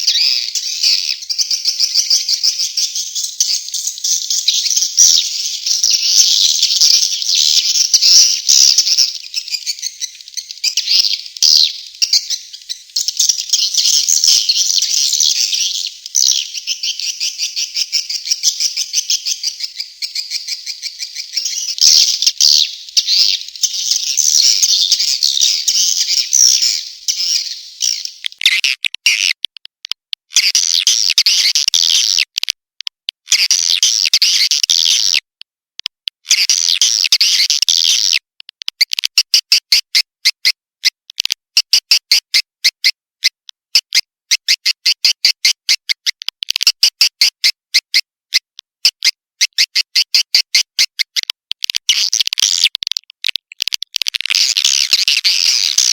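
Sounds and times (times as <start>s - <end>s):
swiftlets twittering chirps: 0.0s - 28.4s.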